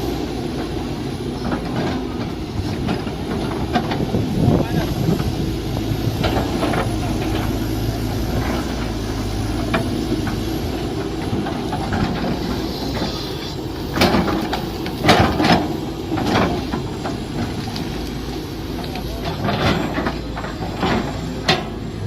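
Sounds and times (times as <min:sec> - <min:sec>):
excavator engine running: 0:00.0 - 0:22.0
machine knocks and clanks: 0:13.8 - 0:18.0, 0:18.7 - 0:21.9.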